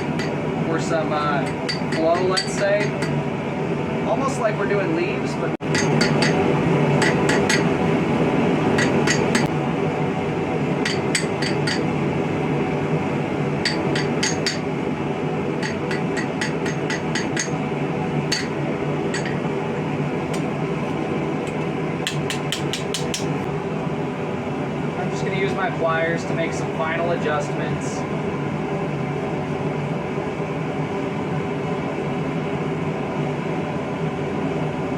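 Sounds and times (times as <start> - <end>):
steady fan hum: 0.0 - 34.9
hammer tapping sheet metal: 5.6 - 6.4, 22.0 - 23.3.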